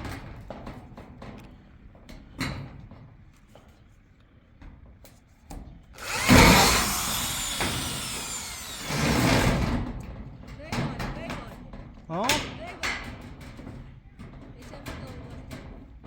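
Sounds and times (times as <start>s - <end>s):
power tool whining: 6.0s - 9.8s.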